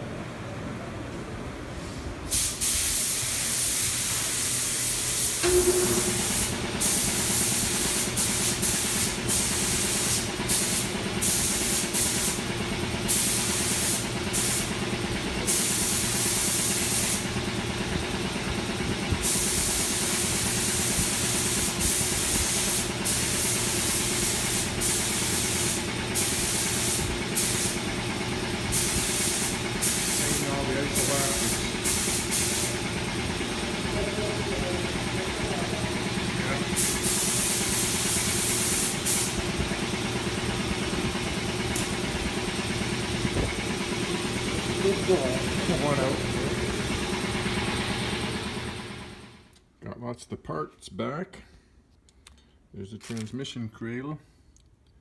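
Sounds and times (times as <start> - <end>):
paint spraying hiss: 2.3 - 12.4, 13.1 - 14.7, 15.5 - 17.3, 19.2 - 27.9, 28.7 - 32.8, 36.8 - 39.4
steady motor hum: 5.3 - 49.5.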